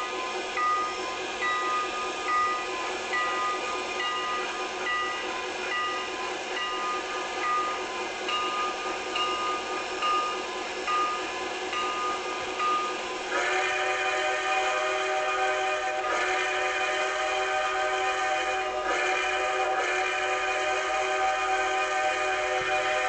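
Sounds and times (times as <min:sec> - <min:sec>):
train bell ringing: 0:00.0 - 0:13.2
train whistle chord: 0:11.8 - 0:23.0.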